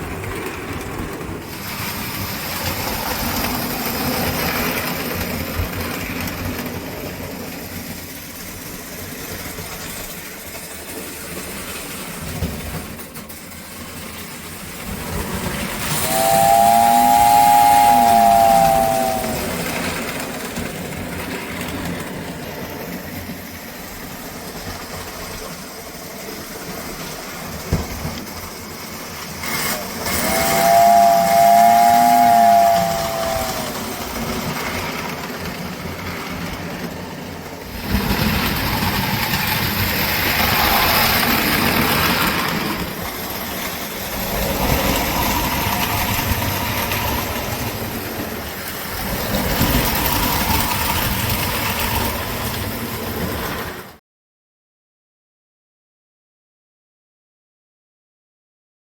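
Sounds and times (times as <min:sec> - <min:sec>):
model train running on track: 0:00.0 - 0:54.0
model train whistle: 0:15.2 - 0:20.2, 0:29.4 - 0:34.6, 0:44.0 - 0:52.9.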